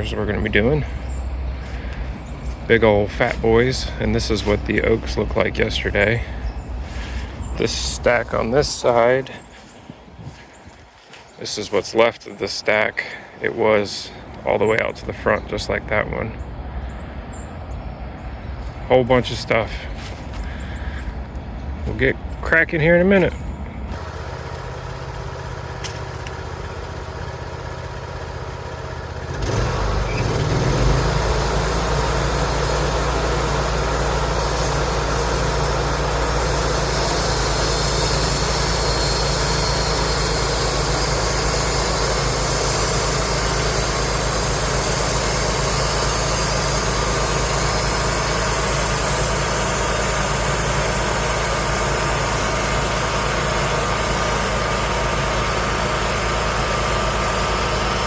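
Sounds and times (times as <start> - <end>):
bandsaw mill engine humming: 0.0 - 13.3, 17.2 - 58.0
steady high hiss: 29.2 - 58.0.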